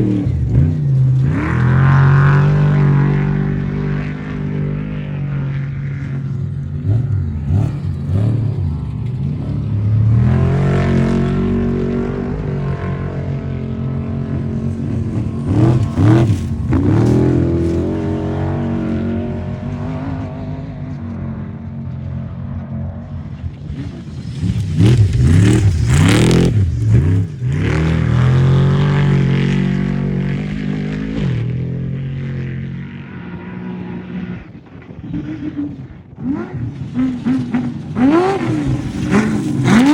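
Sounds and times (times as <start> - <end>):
off-road vehicle engines revving: 0.0 - 39.9.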